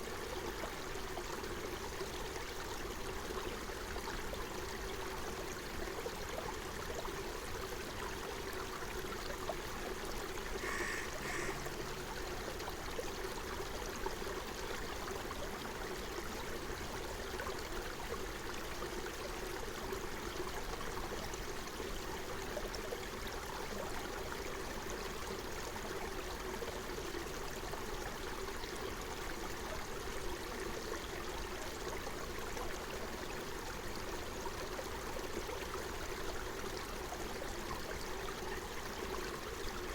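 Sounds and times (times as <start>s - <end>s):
stream flowing: 0.4s - 23.2s
bird calling: 10.6s - 12.2s.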